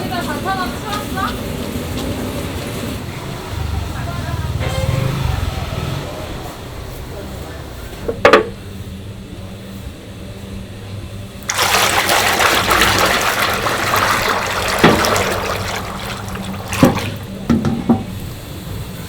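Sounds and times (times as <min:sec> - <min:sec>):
water gushing from a tap: 0:11.4 - 0:18.3.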